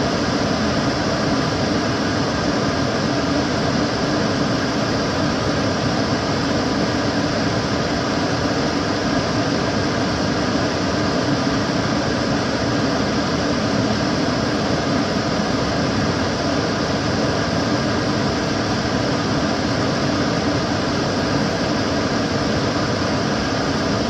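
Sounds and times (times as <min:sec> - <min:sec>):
extractor fan running: 0:00.0 - 0:24.0.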